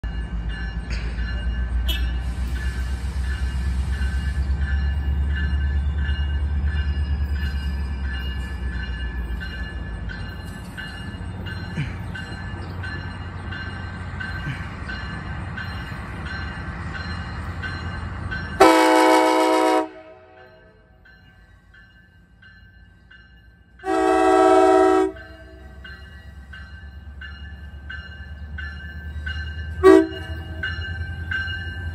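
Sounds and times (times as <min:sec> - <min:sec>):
train horn blast: 0:18.6 - 0:20.7, 0:23.8 - 0:25.6, 0:29.8 - 0:30.4.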